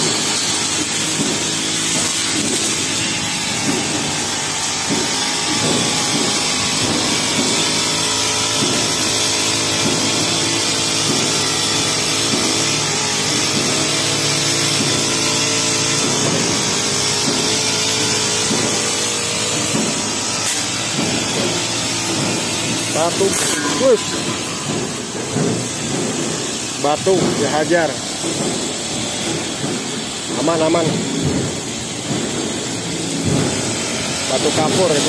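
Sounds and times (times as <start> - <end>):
blade striking grass: 0.0 - 35.0
brush cutter running: 0.0 - 35.0.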